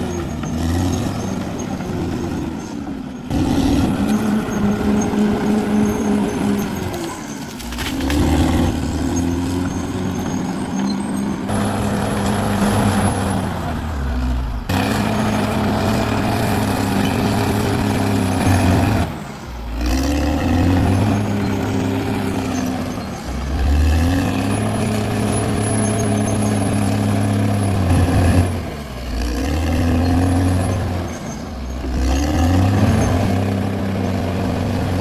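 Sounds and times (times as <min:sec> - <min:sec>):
bulldozer diesel engine working: 0:00.0 - 0:35.0.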